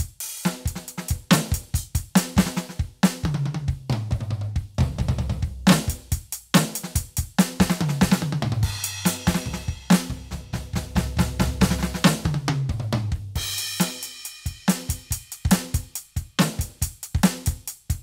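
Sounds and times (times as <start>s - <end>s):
electronic drum kit groove: 0.0s - 18.0s
deep drum tones: 3.2s - 6.6s, 7.6s - 13.8s.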